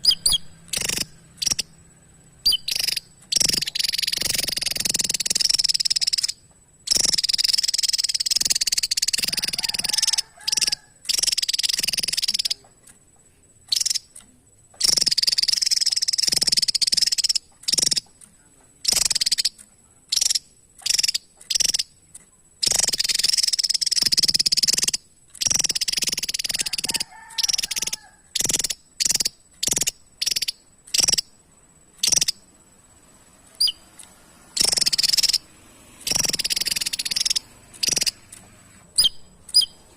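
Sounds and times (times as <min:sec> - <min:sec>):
bird harsh noisy calls: 0:33.6 - 0:38.3.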